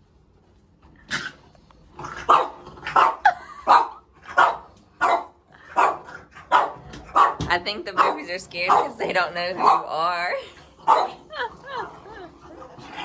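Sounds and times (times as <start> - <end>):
dogs barking: 2.0 - 12.0.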